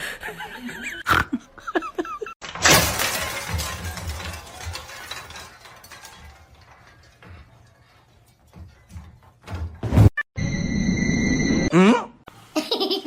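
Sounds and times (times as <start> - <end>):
loud crash: 2.5 - 6.4.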